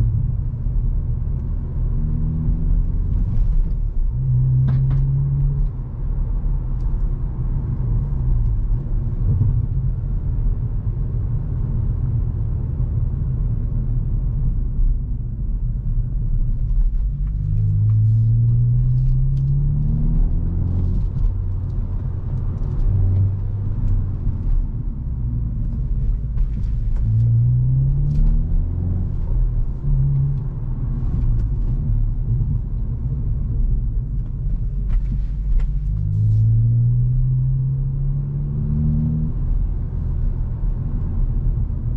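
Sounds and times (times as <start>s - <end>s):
car engine accelerating: 16.5s - 41.9s.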